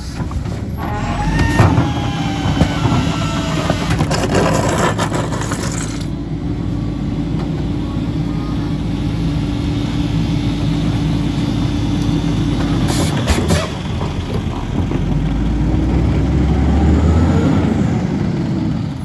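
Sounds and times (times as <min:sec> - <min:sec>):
trash crunching: 0:00.0 - 0:07.7
garbage truck engine hum: 0:00.0 - 0:19.0.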